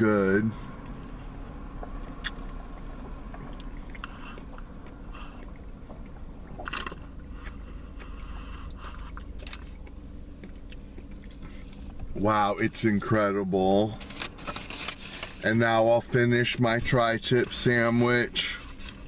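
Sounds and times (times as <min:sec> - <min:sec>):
steady low hum: 0:00.0 - 0:19.0
chewing: 0:01.8 - 0:12.0.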